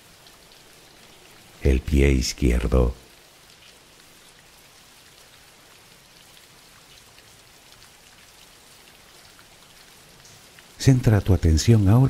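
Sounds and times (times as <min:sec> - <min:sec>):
steady rain hiss: 0:00.0 - 0:12.0
raindrop ticks: 0:02.4 - 0:12.0.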